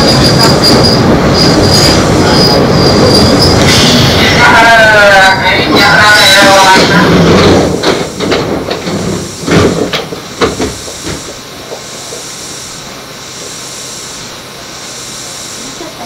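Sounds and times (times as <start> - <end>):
train wheels knocking and clunking: 0.0 - 4.4, 5.9 - 12.3
steady hiss of standing train: 0.0 - 16.0.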